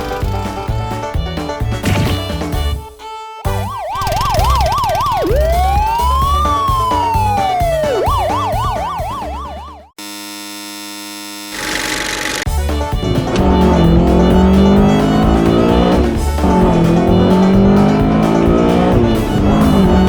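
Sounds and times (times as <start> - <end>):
background music with steady beat: 0.0 - 9.8, 12.5 - 20.0
siren yelping and wailing: 2.8 - 11.8.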